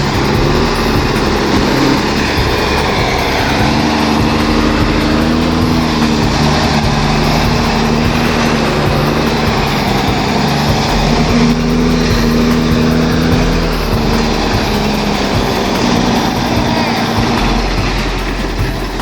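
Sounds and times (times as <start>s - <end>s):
diesel truck engine under load: 0.0s - 19.0s.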